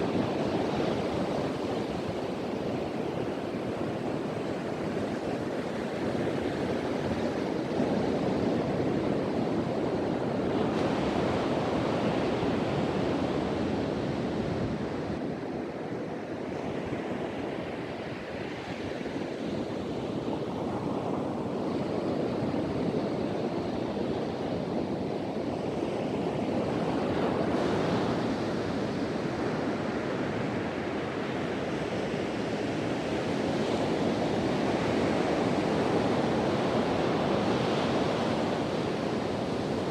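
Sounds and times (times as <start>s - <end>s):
wind blowing: 0.0s - 8.3s.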